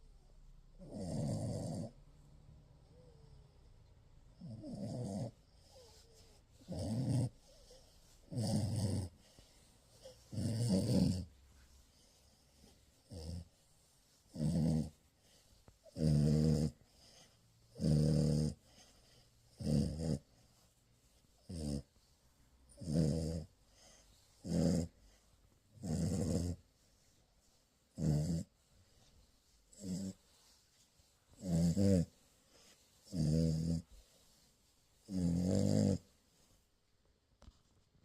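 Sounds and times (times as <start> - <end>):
puppy snoring: 0.8 - 2.0, 4.3 - 13.6, 14.2 - 20.6, 21.4 - 22.0, 22.7 - 26.6, 27.9 - 29.1, 29.7 - 30.5, 31.3 - 34.2, 35.0 - 36.1.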